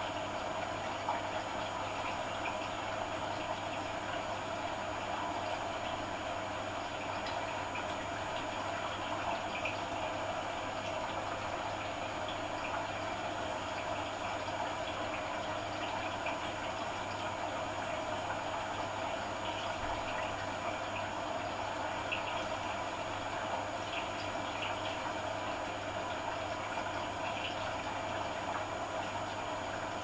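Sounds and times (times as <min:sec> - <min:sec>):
low machine hum: 0:00.9 - 0:03.5, 0:07.3 - 0:09.0, 0:13.2 - 0:14.9, 0:16.4 - 0:20.9, 0:22.3 - 0:25.6, 0:28.3 - 0:30.0.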